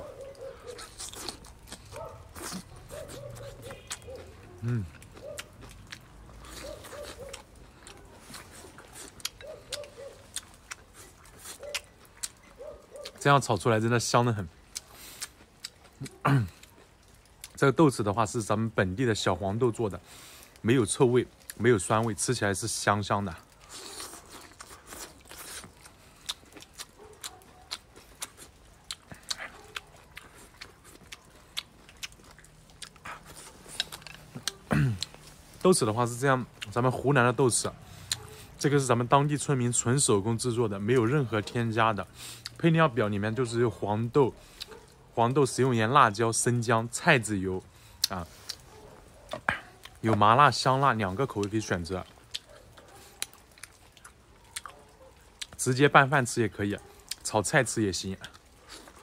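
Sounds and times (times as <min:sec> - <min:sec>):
close-up chewing with mouth clicks: 0:00.0 - 0:18.6, 0:19.2 - 0:45.8, 0:46.9 - 0:55.9, 0:56.7 - 0:59.0
bird calling: 0:02.9 - 0:04.6.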